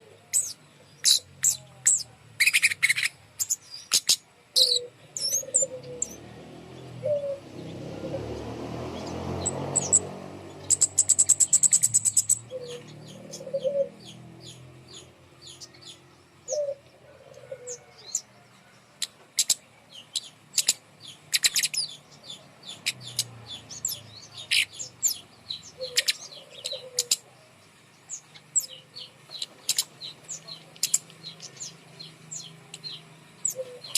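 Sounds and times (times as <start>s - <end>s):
lower-pitched bird calls: 0.0s - 33.9s
bird ticking chirps: 8.9s - 16.8s, 19.0s - 27.2s, 28.1s - 33.9s
bird trill of ticks: 10.6s - 18.3s, 19.0s - 27.3s, 28.1s - 33.9s.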